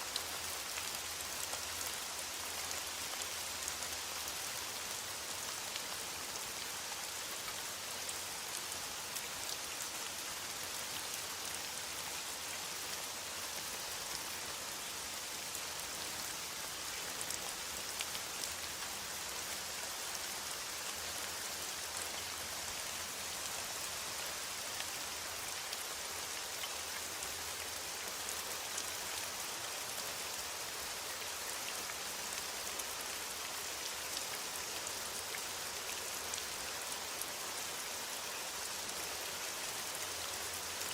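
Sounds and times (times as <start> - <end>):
rain pattering on foliage: 0.0 - 40.9.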